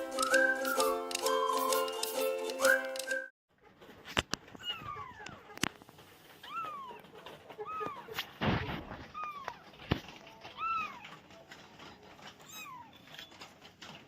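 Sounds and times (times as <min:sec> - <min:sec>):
kitten meowing: 0:04.6 - 0:05.6.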